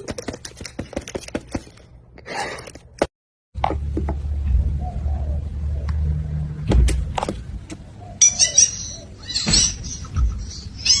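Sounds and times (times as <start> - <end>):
parrot squawking and chirping: 8.0 - 11.0.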